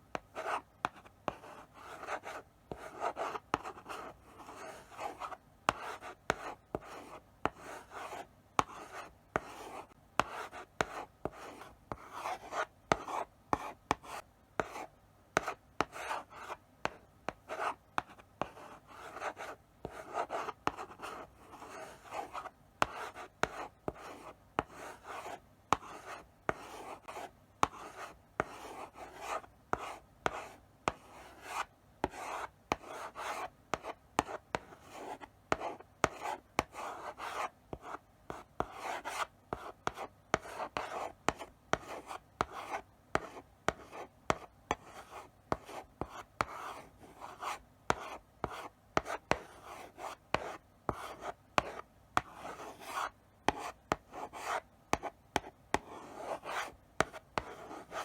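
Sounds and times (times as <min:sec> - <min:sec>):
chalk scratching on blackboard: 0:15.4 - 0:58.0
chalk tapping on board: 0:24.6 - 0:58.0.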